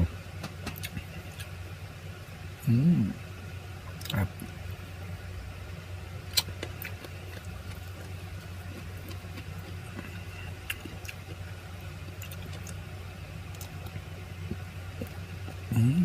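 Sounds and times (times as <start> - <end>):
steady low hum: 0.0 - 16.0
person chewing food: 6.3 - 16.0.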